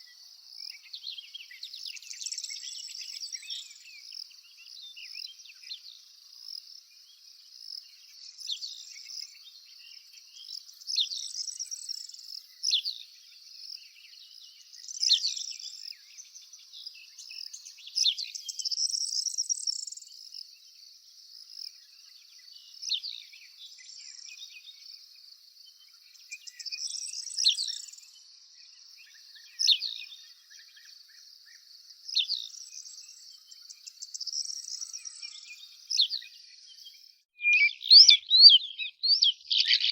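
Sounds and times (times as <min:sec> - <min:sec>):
birds chirping: 0:25.8 - 0:39.9.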